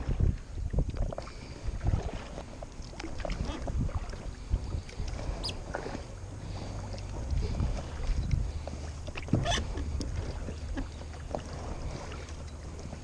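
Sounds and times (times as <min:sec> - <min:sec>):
paddle splashing in water: 0:00.0 - 0:13.0
wind rumble on microphone: 0:00.0 - 0:13.0.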